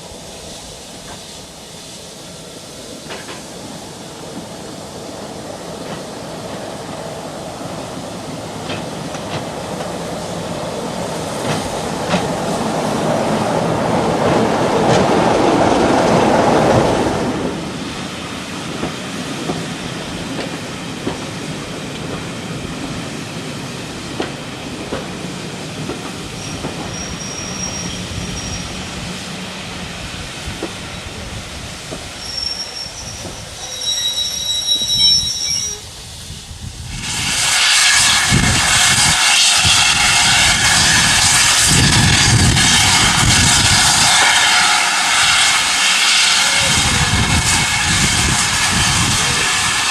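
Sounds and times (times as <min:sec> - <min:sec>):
train rumbling past: 0:00.0 - 0:49.9
high-pitched wheel squeal: 0:26.4 - 0:28.8, 0:32.2 - 0:35.9.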